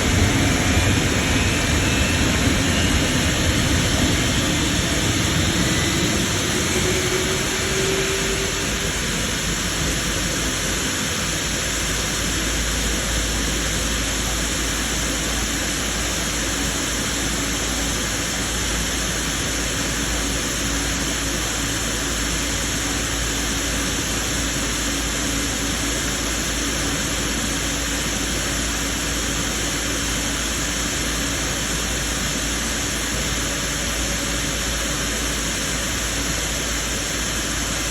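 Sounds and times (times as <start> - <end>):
jet engine rushing: 0.0 - 22.7
faint hum: 0.0 - 23.0.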